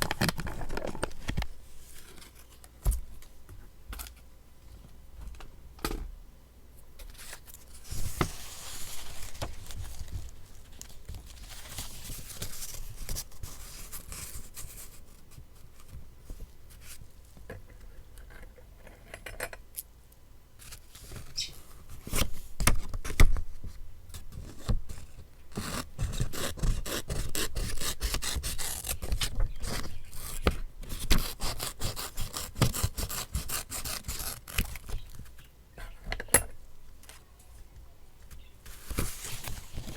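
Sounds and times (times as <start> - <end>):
paper scraping rubs: 7.7 - 14.4.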